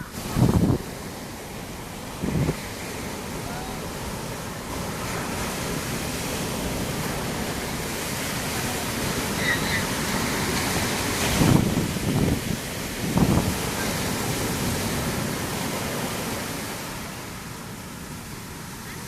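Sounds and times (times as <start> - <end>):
wind on microphone: 0.0 - 17.8
sea waves washing on shore: 0.0 - 19.0.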